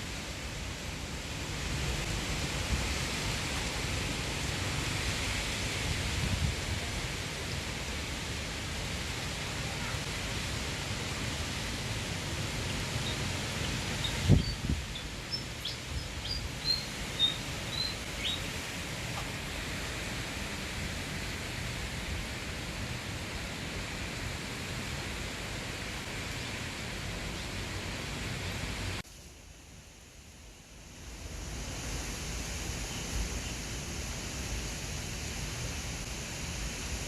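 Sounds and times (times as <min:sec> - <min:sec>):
outdoor noise: 0:00.0 - 0:37.0.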